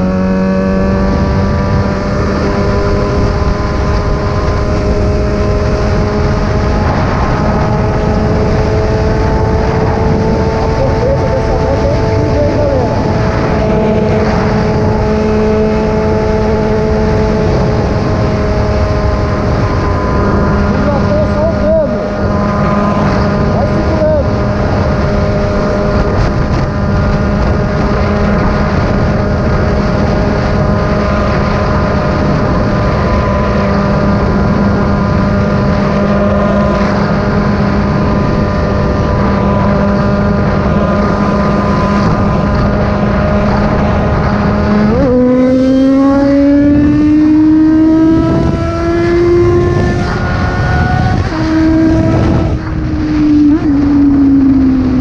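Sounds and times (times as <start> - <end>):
motorcycle engine revving: 0.0 - 55.0
wind and road noise: 0.0 - 55.0.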